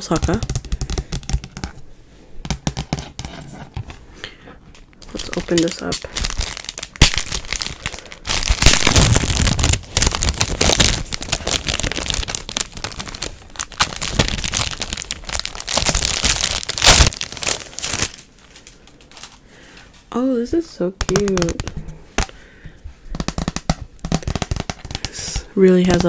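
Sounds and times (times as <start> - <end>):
sharp plastic cracks: 0.0 - 1.8, 5.0 - 19.3, 21.0 - 22.4, 23.1 - 26.0
packaging crinkling and tearing: 4.7 - 19.4, 23.2 - 26.0.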